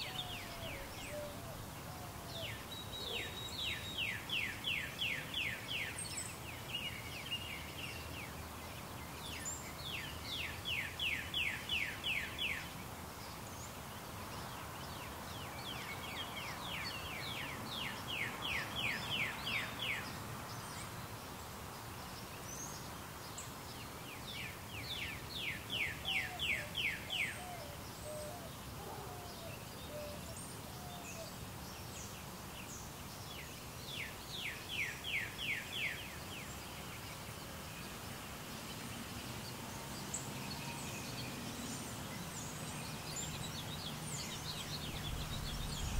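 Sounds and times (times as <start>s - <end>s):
steady hiss: 29.6s - 45.9s.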